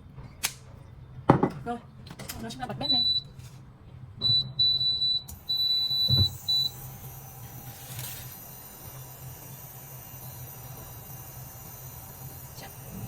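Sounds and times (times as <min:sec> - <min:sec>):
cooling fan whirring: 0:02.0 - 0:13.0
cooktop control panel beeping: 0:04.2 - 0:06.9.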